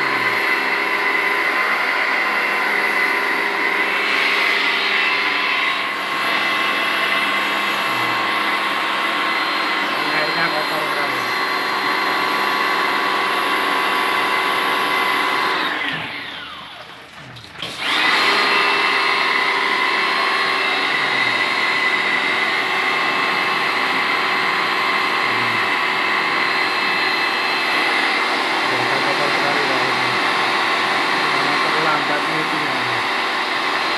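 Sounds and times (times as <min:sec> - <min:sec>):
pressure washer motor running: 0:00.0 - 0:33.9
water spraying: 0:20.5 - 0:33.1.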